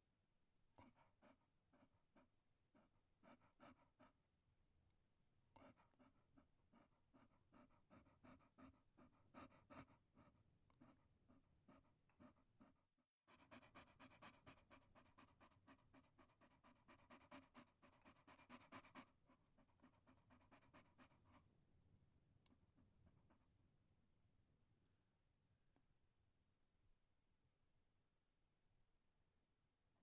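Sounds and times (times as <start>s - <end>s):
small dog panting: 0.8s - 4.2s, 5.5s - 21.6s.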